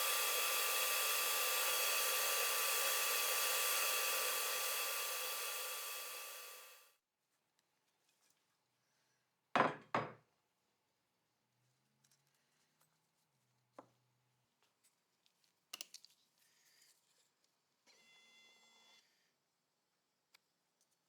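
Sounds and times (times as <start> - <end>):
electric motor with fan whirring: 0.0 - 6.8.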